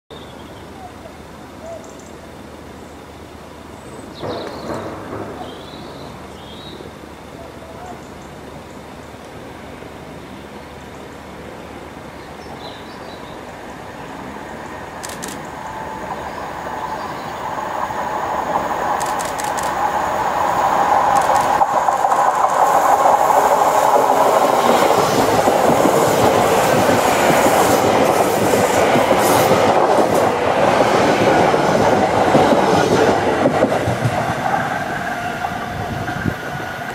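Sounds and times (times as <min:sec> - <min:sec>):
train passing: 0:00.6 - 0:36.9
wheels clicking on rail joints: 0:14.6 - 0:36.9.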